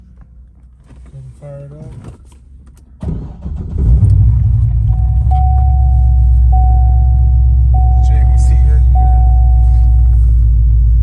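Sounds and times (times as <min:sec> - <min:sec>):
car engine starting and idling: 0:00.0 - 0:11.0
electronic chime tone: 0:04.9 - 0:10.2.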